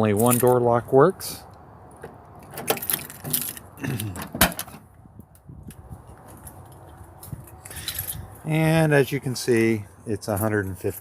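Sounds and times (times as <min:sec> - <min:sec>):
keys jangling: 0:02.5 - 0:03.7.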